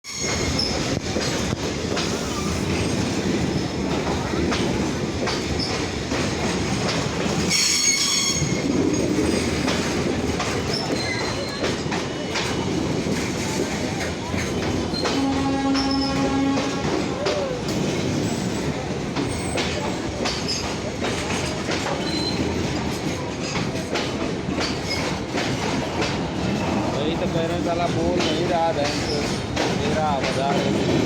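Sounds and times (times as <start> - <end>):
high wheel squeal: 0.0 - 0.8, 7.5 - 9.5
train wheels rumbling and clattering: 0.0 - 31.0.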